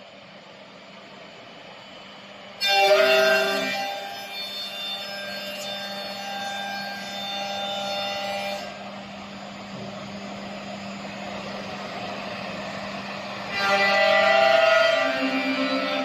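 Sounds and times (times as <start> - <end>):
machine humming: 7.1 - 16.0.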